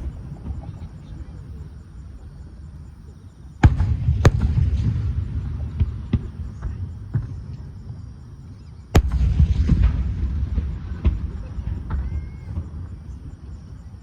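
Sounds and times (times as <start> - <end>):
firework cracks: 3.6 - 7.6, 9.0 - 13.0
firework shells booming: 3.6 - 8.3, 8.9 - 13.4.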